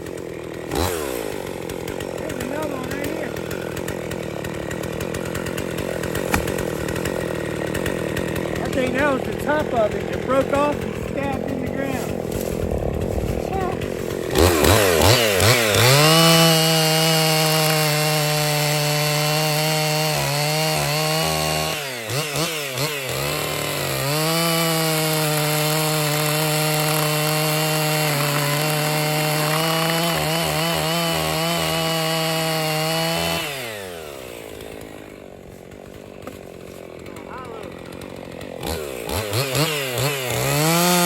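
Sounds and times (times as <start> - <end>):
chainsaw cutting through log: 0.0 - 41.0.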